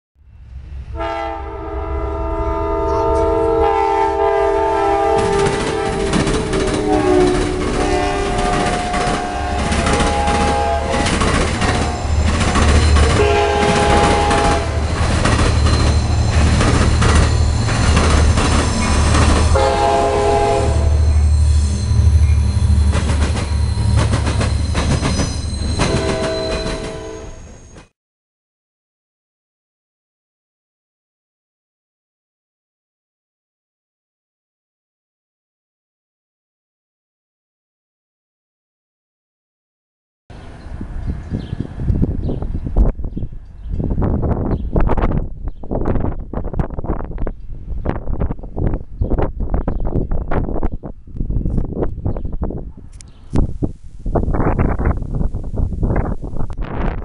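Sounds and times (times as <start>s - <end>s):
train rumble: 0.2s - 27.9s
train horn blasts: 0.9s - 18.0s, 18.7s - 22.9s, 25.6s - 27.6s
wheels clattering over rail joints: 5.2s - 19.6s, 22.8s - 27.0s.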